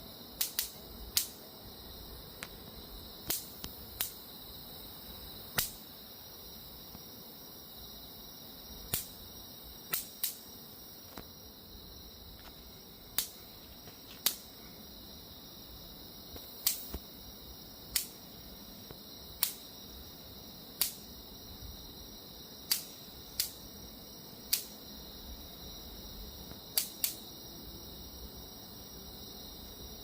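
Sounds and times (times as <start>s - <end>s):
bug zapper electric snaps: 0.3s - 1.4s, 2.4s - 2.6s, 3.2s - 4.3s, 5.5s - 5.9s, 8.8s - 11.3s, 13.1s - 14.5s, 16.3s - 17.1s, 17.9s - 18.3s, 18.9s - 19.8s, 20.7s - 21.1s, 22.6s - 23.8s, 24.4s - 24.9s, 26.4s - 27.3s.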